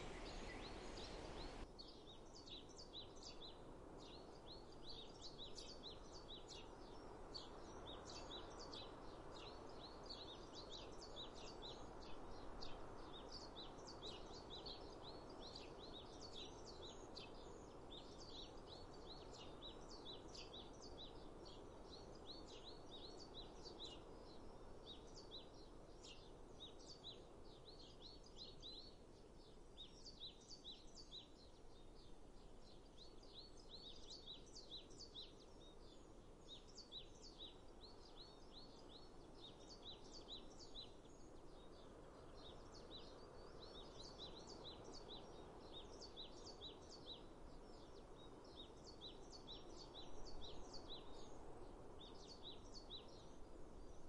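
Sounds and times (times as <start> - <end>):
birds chirping: 0.0 - 1.6
soft background hiss: 0.0 - 54.0.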